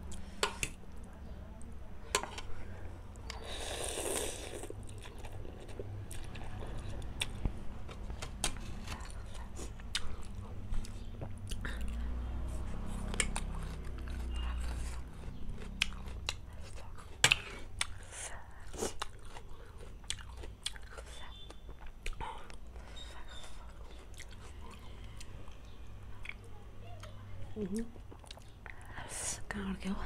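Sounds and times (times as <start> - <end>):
person slurping and chewing noodles: 3.2 - 12.0, 12.6 - 25.6.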